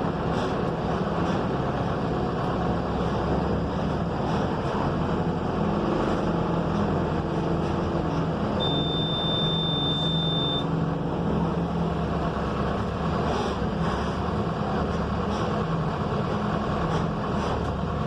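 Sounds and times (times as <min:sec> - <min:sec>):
bus diesel engine running: 0:00.0 - 0:18.0
road noise: 0:00.0 - 0:18.0
high steady beep: 0:08.6 - 0:10.7.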